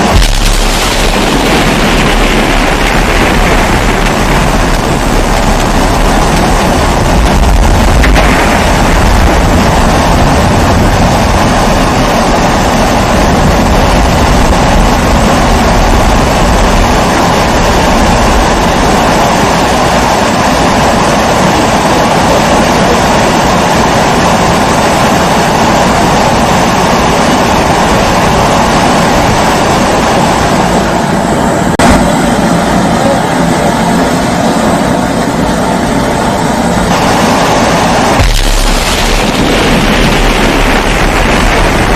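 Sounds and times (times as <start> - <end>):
kerosene stove burner roaring: 0.0 - 21.3.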